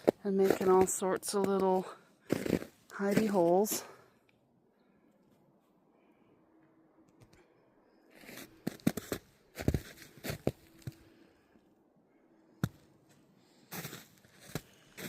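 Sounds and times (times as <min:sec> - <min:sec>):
footsteps crunching in snow: 0:00.0 - 0:04.0, 0:08.2 - 0:11.1, 0:13.1 - 0:15.0.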